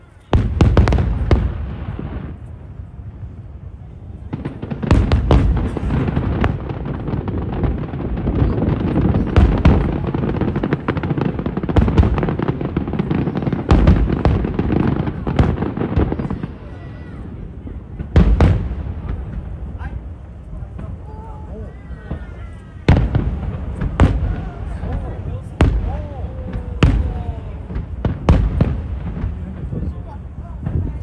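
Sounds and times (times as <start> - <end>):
fireworks bursting: 0.0 - 31.0.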